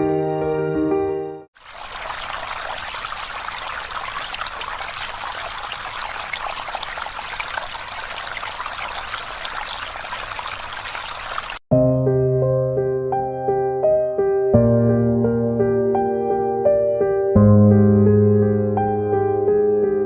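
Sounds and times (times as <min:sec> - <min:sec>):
river water babbling over stones: 0:01.6 - 0:11.6.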